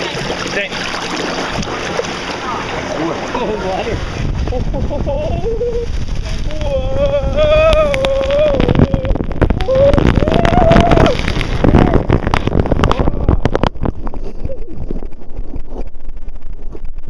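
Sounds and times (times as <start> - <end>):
sharp splashes and knocks: 0.0 - 3.0, 7.8 - 14.1
water rushing: 0.0 - 13.8
wind buffeting microphone: 0.0 - 17.0.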